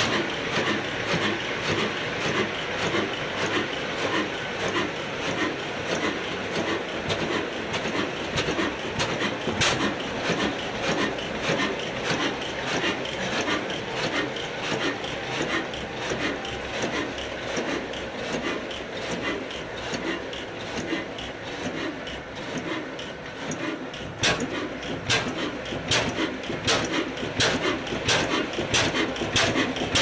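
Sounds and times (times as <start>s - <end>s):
stationary diesel engine running: 0.0s - 30.0s.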